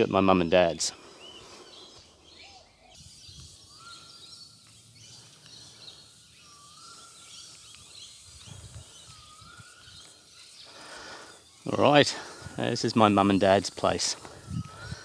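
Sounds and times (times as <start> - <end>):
high bird chirps: 1.2 - 11.8
bird rising whistle: 6.4 - 10.3.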